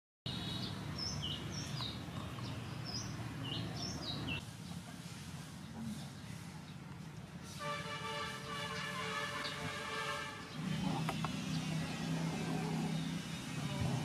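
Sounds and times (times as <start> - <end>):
birds chirping: 0.3 - 4.8, 8.0 - 14.0.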